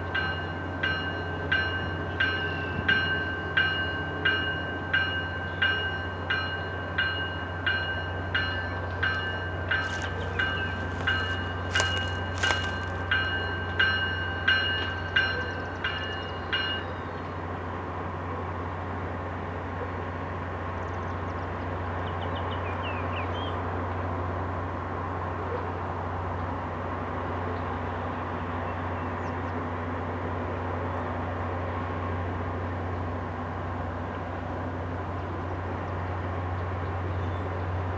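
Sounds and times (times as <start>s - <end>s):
railroad bell ringing: 0.0s - 9.8s, 13.0s - 17.1s.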